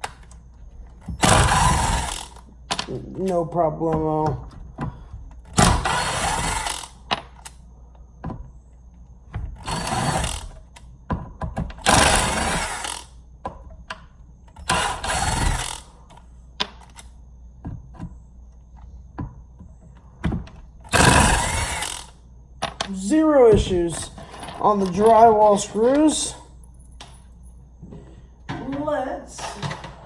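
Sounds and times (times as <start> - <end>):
impact driver driving screws: 1.1 - 2.4, 5.6 - 7.0, 9.6 - 10.6, 11.8 - 13.1, 14.6 - 15.8, 20.9 - 22.2.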